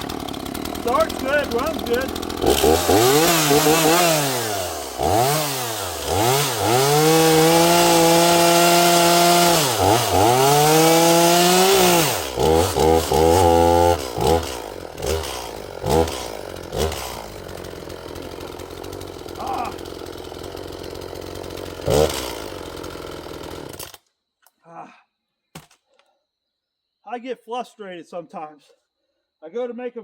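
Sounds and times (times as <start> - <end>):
chainsaw revving: 0.0 - 24.0
chainsaw cutting wood: 0.0 - 24.1.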